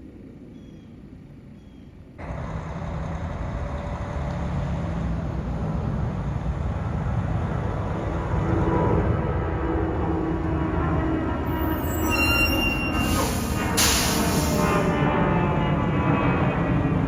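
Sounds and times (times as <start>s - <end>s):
jet aircraft engine noise: 3.3s - 17.0s
short high chirps: 11.6s - 14.0s.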